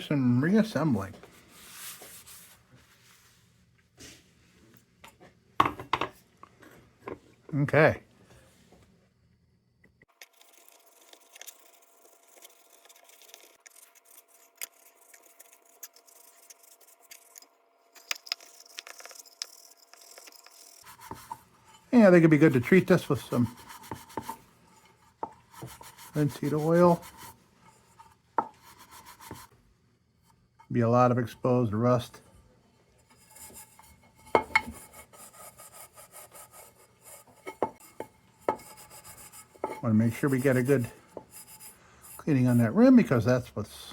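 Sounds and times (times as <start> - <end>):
faint scratching: 10.2 - 17.5, 18.2 - 29.5, 32.9 - 43.4
hand scrubbing rusty metal: 10.3 - 17.4, 18.3 - 29.5, 32.8 - 43.3.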